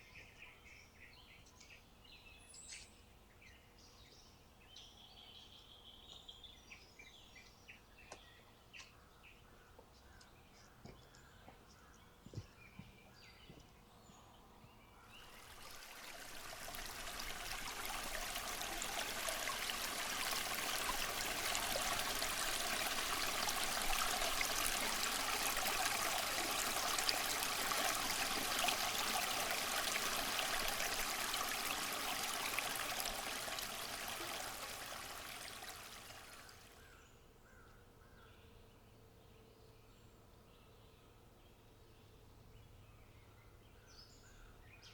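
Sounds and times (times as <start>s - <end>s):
rushing stream water: 15.2s - 36.7s.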